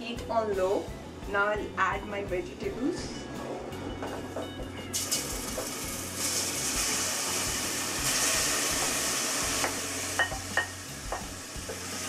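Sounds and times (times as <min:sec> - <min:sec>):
food sizzling in a pan: 0:04.9 - 0:12.0.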